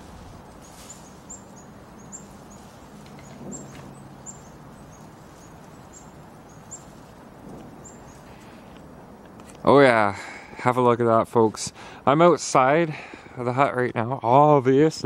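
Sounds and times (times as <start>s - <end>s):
small bird chirping: 0.0s - 8.9s
outdoor background rush: 0.0s - 15.0s.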